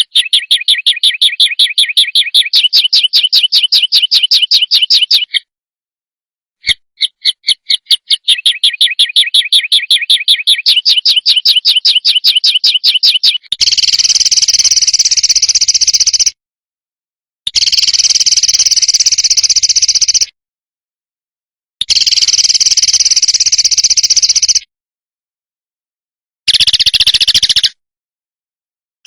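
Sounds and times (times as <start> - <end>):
songbird sharp chirps: 0.0 - 5.5, 6.6 - 16.4, 21.8 - 24.7, 26.5 - 27.8
bird harsh buzzing rattles: 11.2 - 16.3, 17.5 - 20.3, 21.8 - 24.6, 26.5 - 27.8.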